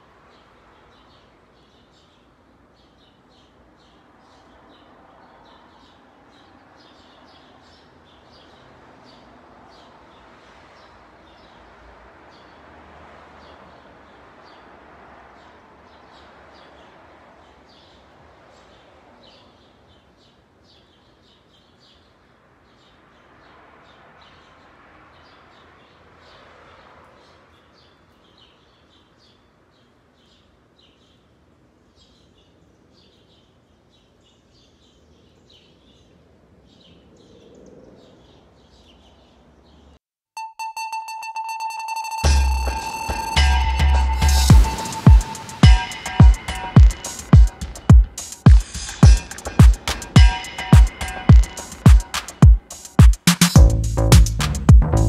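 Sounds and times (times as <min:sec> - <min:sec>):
small birds chirping: 0:00.0 - 0:12.6, 0:15.4 - 0:40.0, 0:42.2 - 0:55.0
rushing outdoor background: 0:40.4 - 0:55.0.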